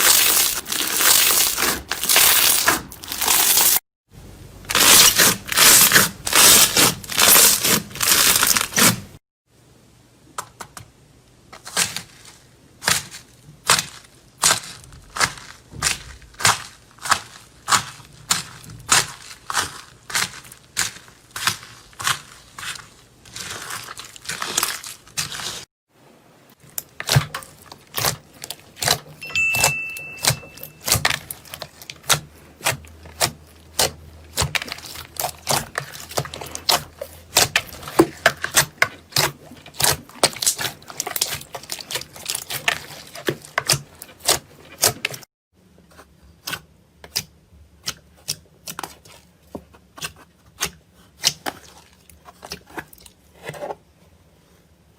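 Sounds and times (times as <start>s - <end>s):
slime clicking and crackling: 0.0s - 3.8s, 30.2s - 45.2s.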